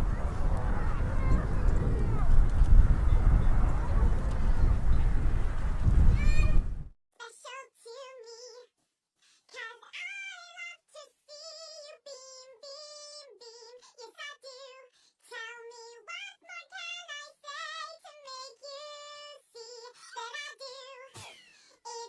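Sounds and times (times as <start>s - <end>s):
synthetic high singing voice: 6.1s - 8.7s, 9.5s - 21.2s, 21.8s - 22.0s.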